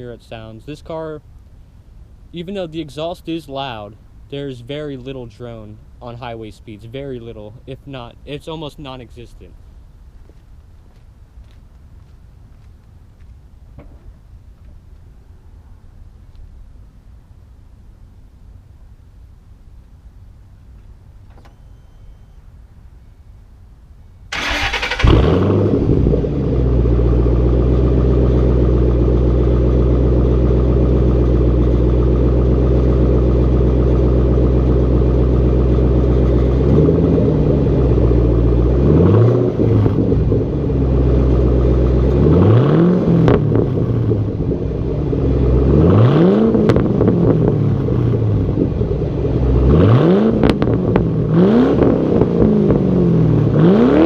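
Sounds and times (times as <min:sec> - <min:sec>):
car engine idling: 0:24.3 - 0:53.7
car engine starting: 0:24.3 - 0:54.0
engine revving: 0:24.4 - 0:54.0.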